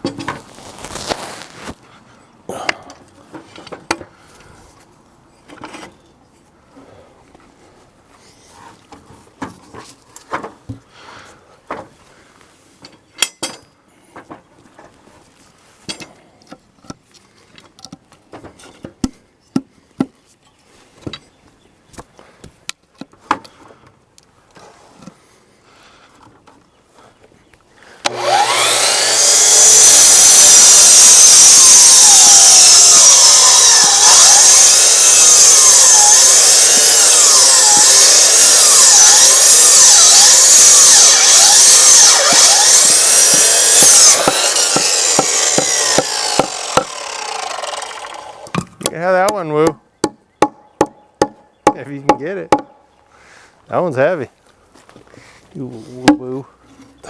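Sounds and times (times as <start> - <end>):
power tool cutting: 28.1 - 48.6.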